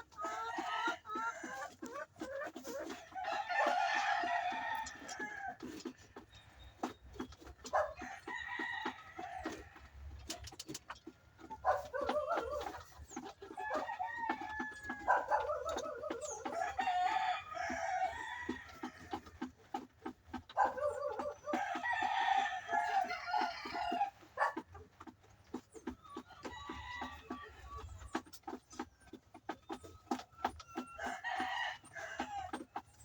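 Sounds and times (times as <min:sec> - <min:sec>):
hens clucking: 0:00.0 - 0:33.0
hens calling: 0:11.4 - 0:19.5.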